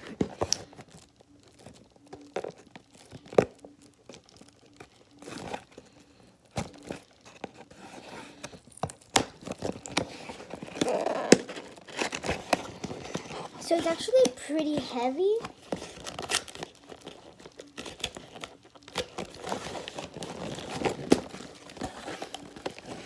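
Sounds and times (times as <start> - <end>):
plastic packaging crinkling: 0.0 - 23.0.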